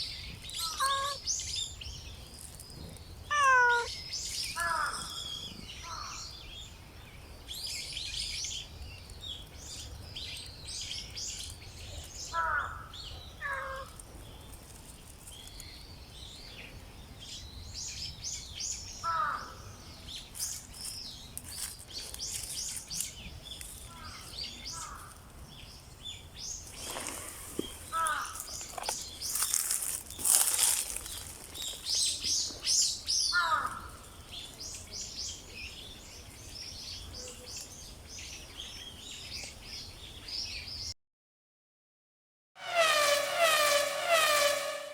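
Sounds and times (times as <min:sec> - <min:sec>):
small birds chirping: 0:00.0 - 0:40.9
short falling bird calls: 0:00.6 - 0:01.2.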